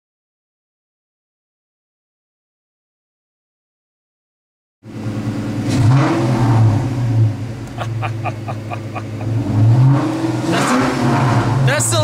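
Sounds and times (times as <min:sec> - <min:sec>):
car engine revving: 0:04.8 - 0:12.0.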